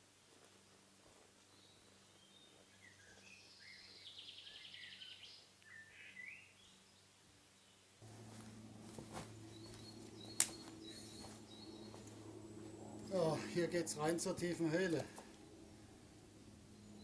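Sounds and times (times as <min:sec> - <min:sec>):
faint songbird singing: 0:00.5 - 0:17.0
low steady hum: 0:06.9 - 0:17.0.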